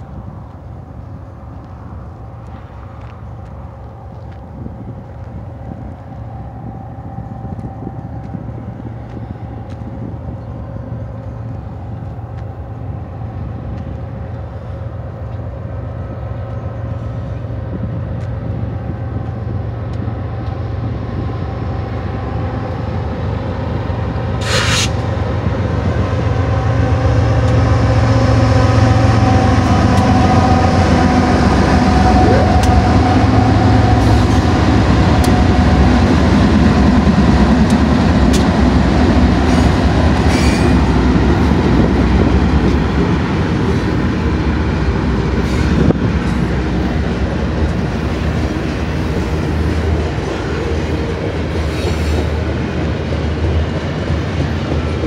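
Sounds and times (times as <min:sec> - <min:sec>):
locomotive engines rumbling: 0:00.0 - 0:55.0
brief hiss: 0:24.4 - 0:25.0.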